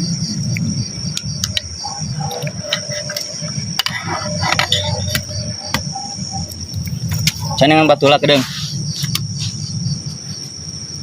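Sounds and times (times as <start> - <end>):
crickets trilling: 0.0 - 11.0
scattered clicks: 0.5 - 1.7.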